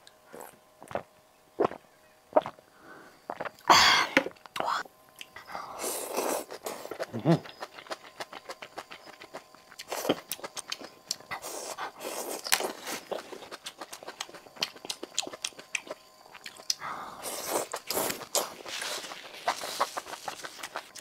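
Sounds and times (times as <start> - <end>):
chewing and biting food: 6.1 - 21.0.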